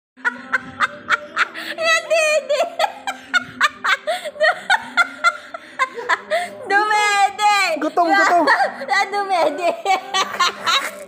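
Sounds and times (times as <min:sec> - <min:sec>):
person snickering: 0:10.3 - 0:11.0.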